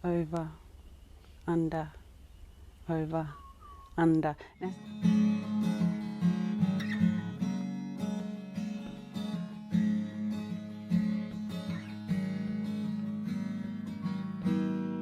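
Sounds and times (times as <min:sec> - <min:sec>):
acoustic guitar strumming: 0:04.6 - 0:15.0.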